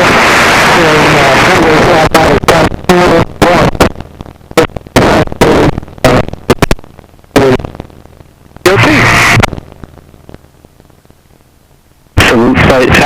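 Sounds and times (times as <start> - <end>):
garbled radio voice bursts: 0.0 - 3.9, 4.6 - 6.7, 7.4 - 7.7, 8.7 - 9.5, 12.2 - 13.0.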